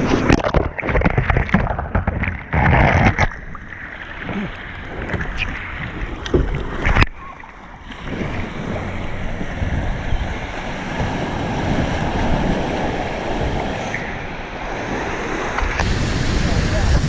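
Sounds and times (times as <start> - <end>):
ocean surf and rushing water: 0.0 - 17.0
sharp splashing knocks: 0.2 - 3.5
wind buffeting microphone: 7.8 - 14.1, 14.8 - 17.0.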